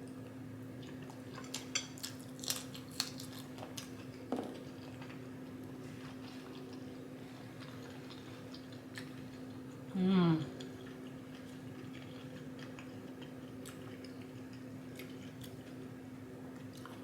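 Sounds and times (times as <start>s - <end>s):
faint steady hum: 0.0s - 17.0s
small wet clicks and crackles: 10.6s - 15.8s.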